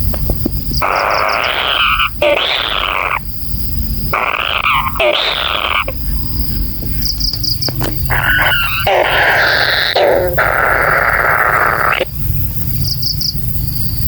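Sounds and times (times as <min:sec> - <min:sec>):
kingfisher harsh rasping calls: 0:00.8 - 0:03.3, 0:04.1 - 0:12.1.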